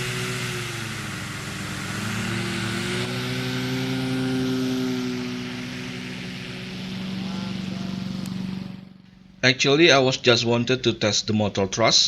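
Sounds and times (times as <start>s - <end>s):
electric motor whine: 0.0s - 9.2s
propeller rushing: 0.0s - 9.9s.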